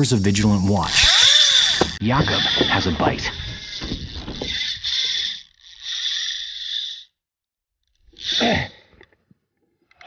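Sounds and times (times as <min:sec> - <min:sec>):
high chirring: 0:00.0 - 0:02.0
man grunting: 0:08.3 - 0:08.9.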